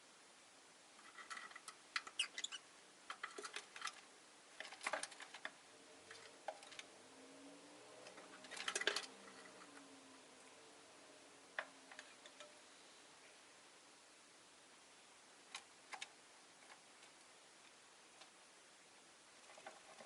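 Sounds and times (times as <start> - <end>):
lovebirds chirping and clicking: 2.0 - 2.6.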